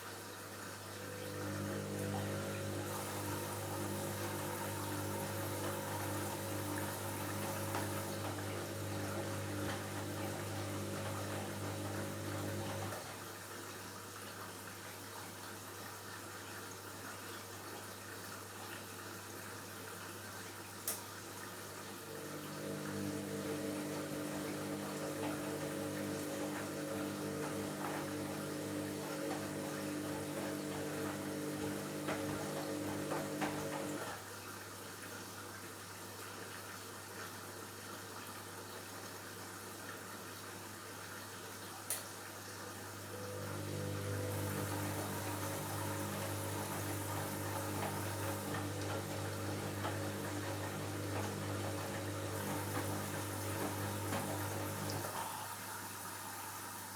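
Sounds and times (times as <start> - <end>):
drain pump electric hum: 0.0 - 13.4, 21.8 - 34.2, 42.5 - 56.9
water flowing: 0.0 - 13.6, 21.2 - 34.2, 42.2 - 56.9.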